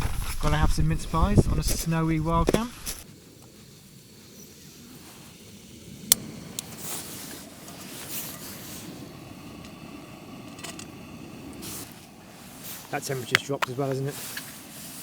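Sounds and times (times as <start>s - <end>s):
wind rumbling on microphone: 0.0s - 3.0s.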